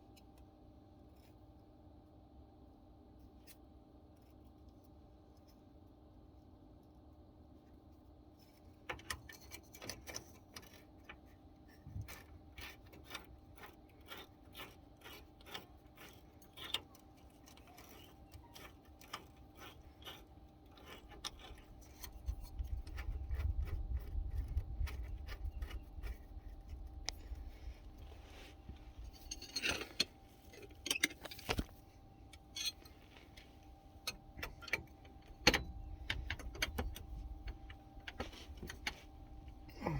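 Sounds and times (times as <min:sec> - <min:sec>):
wrenches clicking on metal fittings: 0:32.5 - 0:32.9.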